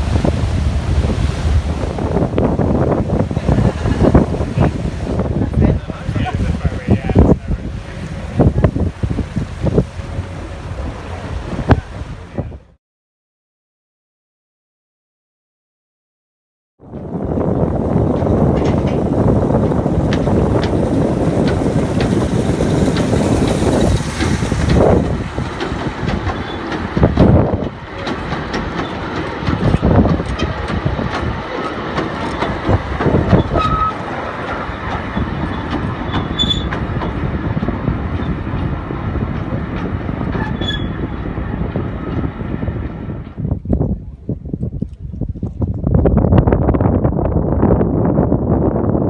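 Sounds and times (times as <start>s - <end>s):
wheels clacking over rail joints: 0.0s - 12.4s, 17.0s - 43.4s
train rumbling along: 0.0s - 12.7s, 16.9s - 44.4s
high squeals: 40.4s - 41.2s.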